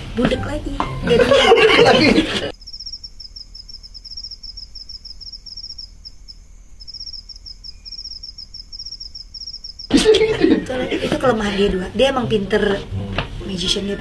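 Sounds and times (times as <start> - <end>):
cricket chirping: 2.5 - 10.2.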